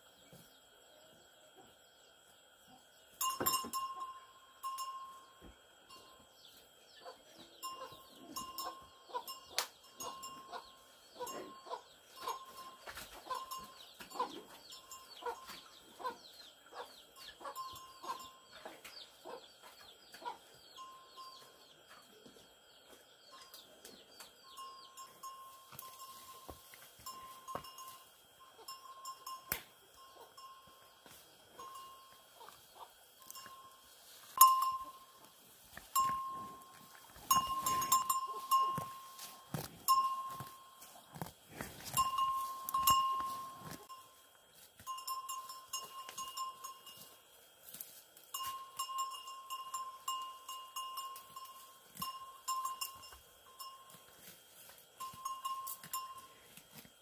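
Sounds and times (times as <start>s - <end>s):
farm animals calling: 2.6s - 44.2s.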